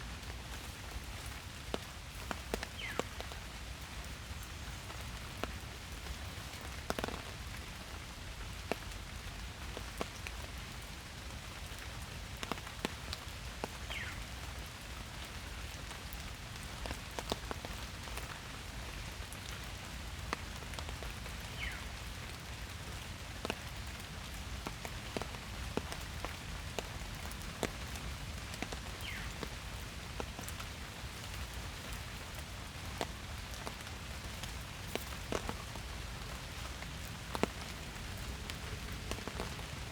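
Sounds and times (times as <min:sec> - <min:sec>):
rain pattering in forest: 0:00.0 - 0:39.9
raindrops ticking sharply: 0:23.4 - 0:39.9.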